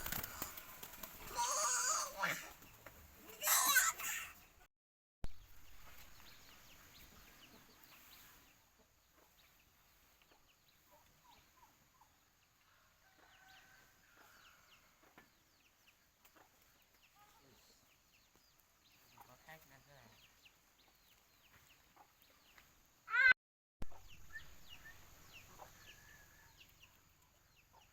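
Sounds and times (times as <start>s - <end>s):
poultry clucking and peeping: 5.8s - 22.8s, 23.8s - 27.9s.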